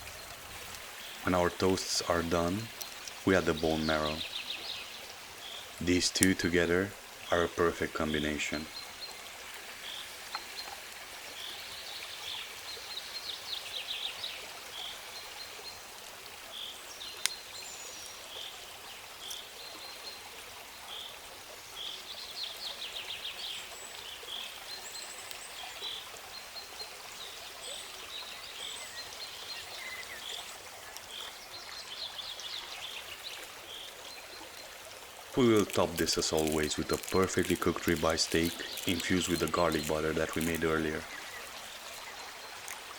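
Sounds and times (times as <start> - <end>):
stream water running: 0.0 - 42.9.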